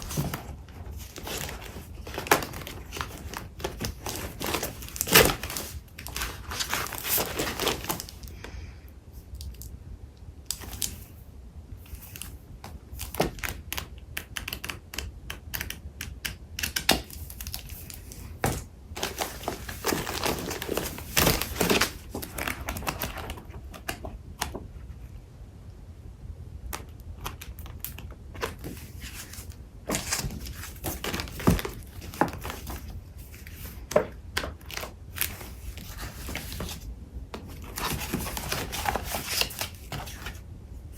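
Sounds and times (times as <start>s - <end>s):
paper rustling and crinkling: 0.0s - 8.4s, 17.0s - 24.2s, 27.2s - 40.9s.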